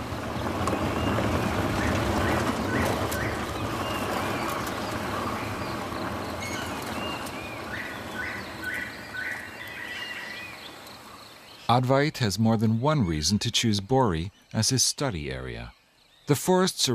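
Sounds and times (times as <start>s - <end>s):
steady background rumble: 0.0s - 13.3s
birds calling: 0.0s - 16.9s.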